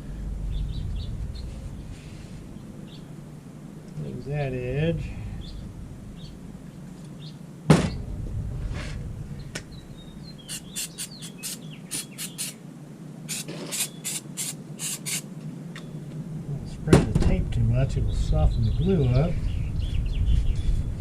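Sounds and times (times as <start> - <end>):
faint bird chirps: 9.3 - 12.6
spray bottle spritzing: 10.5 - 12.6, 13.3 - 15.2.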